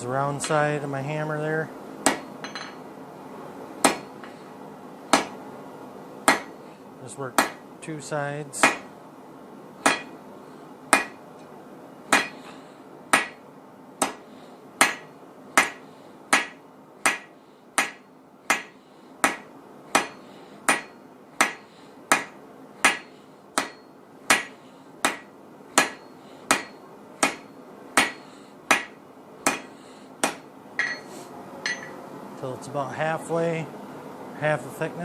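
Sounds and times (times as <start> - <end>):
hammer striking steel on anvil: 2.0 - 2.8, 3.8 - 4.1, 5.1 - 5.4, 6.2 - 6.6, 7.4 - 7.6, 8.6 - 8.9, 9.8 - 10.2, 10.9 - 11.2, 12.1 - 12.5, 13.1 - 13.4, 14.0 - 14.2, 14.8 - 32.0.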